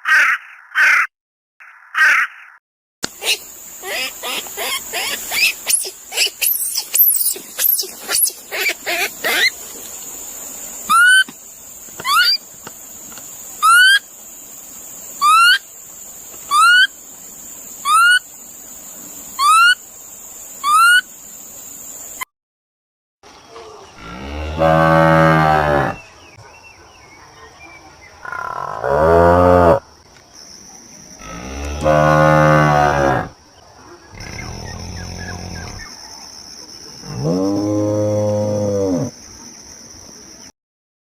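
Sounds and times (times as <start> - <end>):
quick gliding bird chirps: 3.2 - 9.9, 10.8 - 11.3
rising whistled bird call: 10.9 - 11.3, 13.6 - 14.0.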